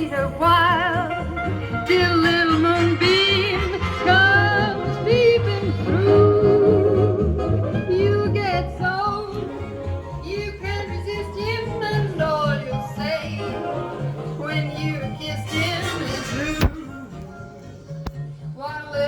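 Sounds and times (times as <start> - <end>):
person singing with vibrato: 0.0 - 9.5.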